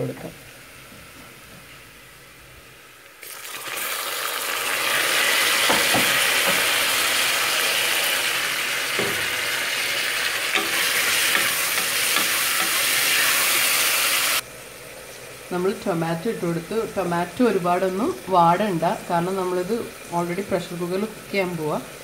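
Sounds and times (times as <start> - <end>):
tomatoes sizzling in hot oil: 2.4 - 22.0
wooden spatula knocking pot: 5.6 - 6.8, 8.9 - 9.4.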